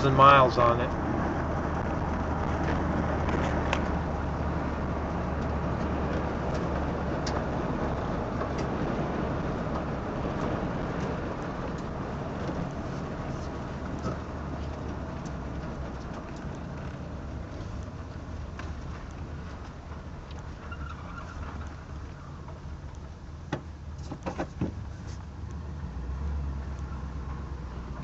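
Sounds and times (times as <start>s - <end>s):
car engine running: 0.0s - 28.0s
road noise: 0.0s - 28.0s.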